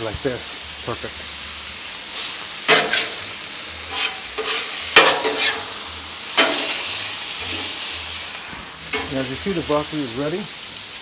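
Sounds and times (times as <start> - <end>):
beef sizzling on a griddle: 0.0 - 11.0
metal spatula scraping steel: 2.7 - 8.2, 8.8 - 9.6.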